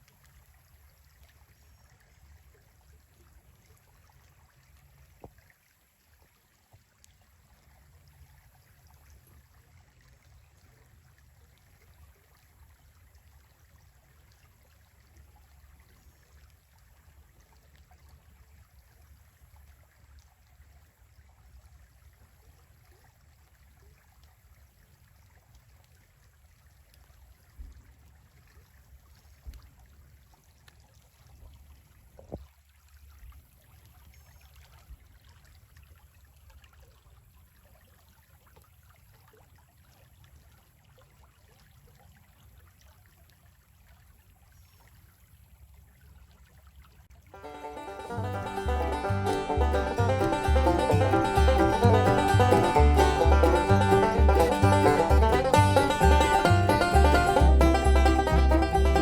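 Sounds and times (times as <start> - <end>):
stream trickling: 0.0 - 59.0
low steady rumble: 47.4 - 59.0
soft low thumps: 47.4 - 59.0.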